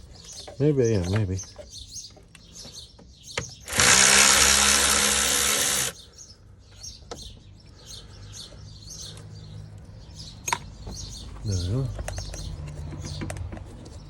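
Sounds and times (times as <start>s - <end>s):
power drill spinning: 3.7s - 6.0s.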